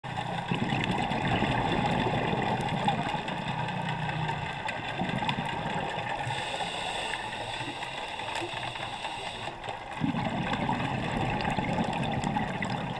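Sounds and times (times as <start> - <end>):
boat engine droning: 0.1 - 10.0.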